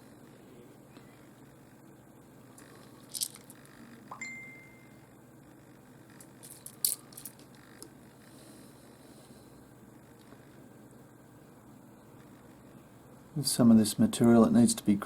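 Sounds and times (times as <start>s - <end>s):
stones clicking together: 3.0s - 3.6s, 6.2s - 7.6s.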